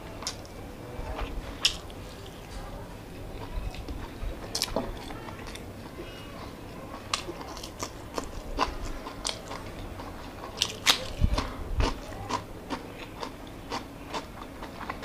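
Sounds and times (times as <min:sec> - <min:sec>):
chewing and lip-smacking: 0:03.3 - 0:15.0.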